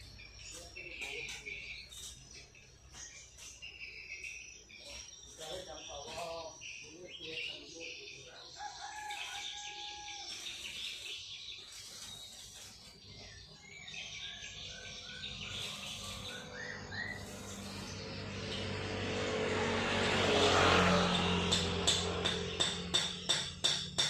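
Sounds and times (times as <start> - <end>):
birds chirping and singing: 0.0 - 24.0
held crowing call: 8.5 - 10.8.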